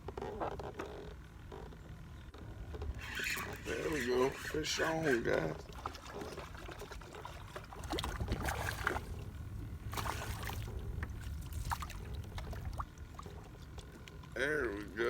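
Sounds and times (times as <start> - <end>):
rush of water: 3.0 - 13.8
steady low rumble: 7.3 - 14.1.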